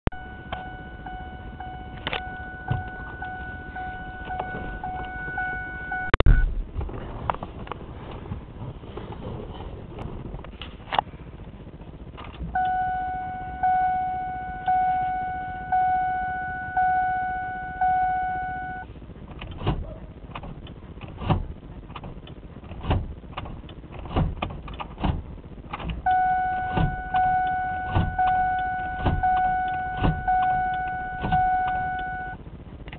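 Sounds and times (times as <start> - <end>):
car warning chime: 0.0 - 6.5, 12.6 - 18.9, 26.1 - 32.4.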